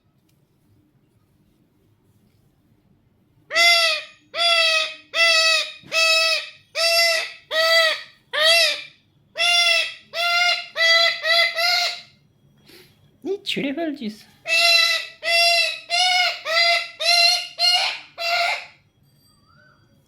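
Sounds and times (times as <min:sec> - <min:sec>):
parakeet squawking: 0:03.5 - 0:12.2, 0:14.4 - 0:18.8.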